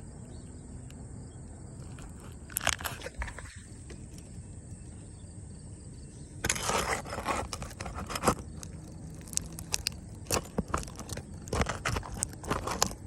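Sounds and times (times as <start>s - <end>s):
roofing scraping and crunching: 1.8s - 4.2s, 6.4s - 13.0s
sharp clicks and knocks: 6.4s - 13.0s.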